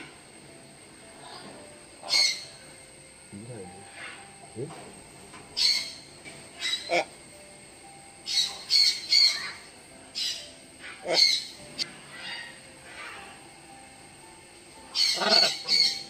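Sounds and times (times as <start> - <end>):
macaw squawking: 1.2 - 2.6, 3.8 - 4.4, 5.6 - 7.2, 8.2 - 13.4, 14.9 - 16.0.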